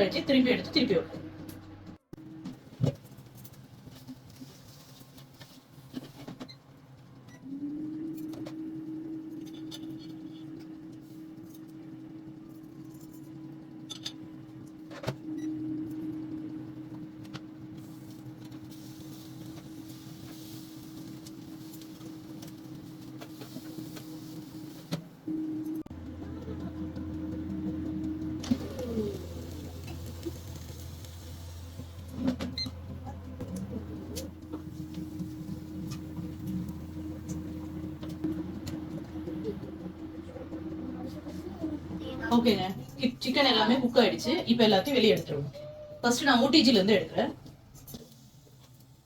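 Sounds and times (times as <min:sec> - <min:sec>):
kitchen appliance motor humming: 0:15.8 - 0:46.9.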